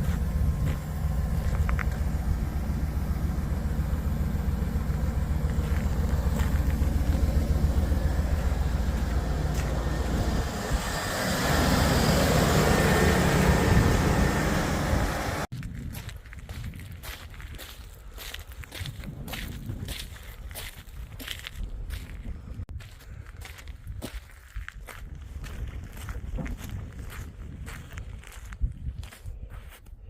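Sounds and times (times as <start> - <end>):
engine rumbling: 0.0 - 24.0.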